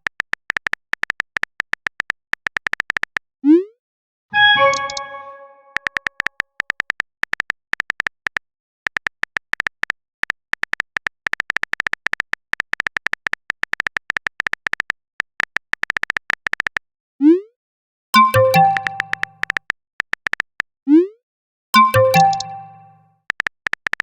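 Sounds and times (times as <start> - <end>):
keyboard typing clicks: 4.4 - 16.8, 18.2 - 20.7, 21.8 - 24.0.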